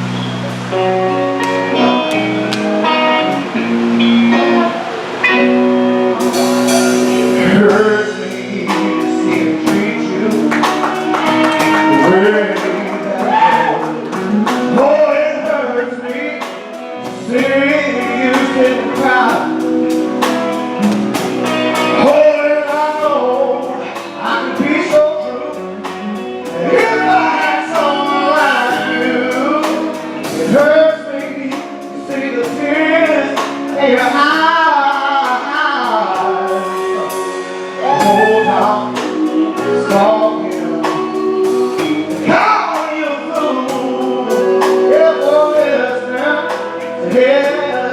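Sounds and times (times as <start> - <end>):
live band music: 0.0 - 47.9
man singing: 6.2 - 20.2, 21.7 - 47.9
drum beat: 8.8 - 14.9.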